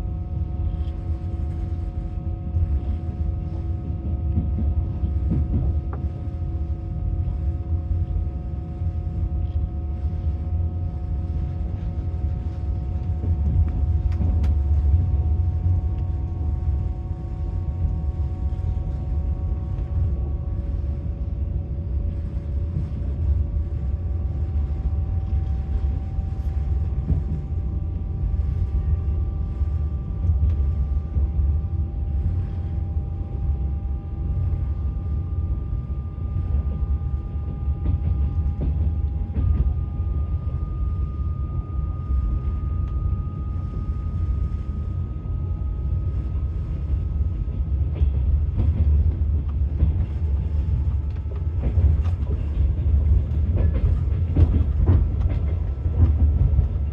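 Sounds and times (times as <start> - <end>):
train wheels rumbling on rails: 0.0 - 56.9
faint rising whine: 38.9 - 47.8.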